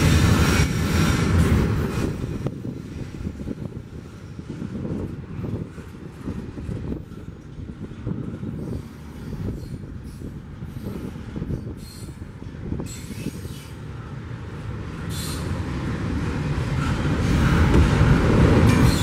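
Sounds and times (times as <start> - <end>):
freight train rumbling: 0.0 - 19.0
high-pitched wheel squeals: 10.8 - 12.2, 12.8 - 13.8, 15.1 - 15.6, 18.7 - 19.0.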